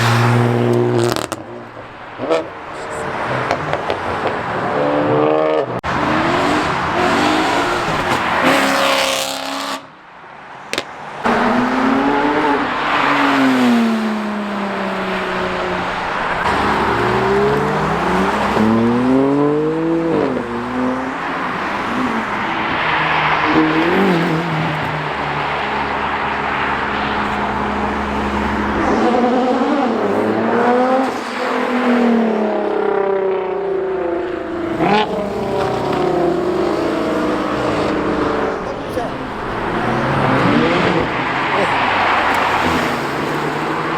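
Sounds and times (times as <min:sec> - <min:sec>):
car engines revving and accelerating: 0:00.0 - 0:43.9.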